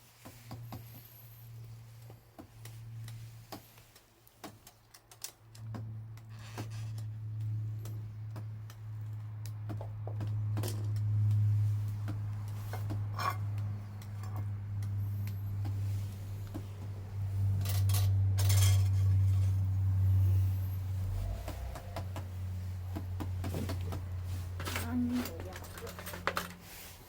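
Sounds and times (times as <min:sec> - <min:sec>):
low hum: 0:05.7 - 0:27.0.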